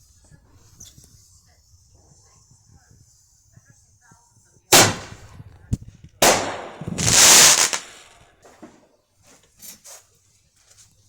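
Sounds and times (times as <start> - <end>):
firework crack: 4.7 - 8.8
firework bang: 4.8 - 5.5, 6.2 - 8.7
faint firework pops: 4.8 - 8.8
loud hissing burst: 6.2 - 8.2.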